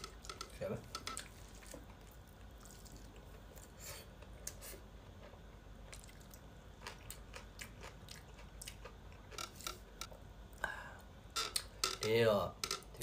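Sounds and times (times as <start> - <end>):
person chewing wet mouth sounds: 1.4 - 9.4.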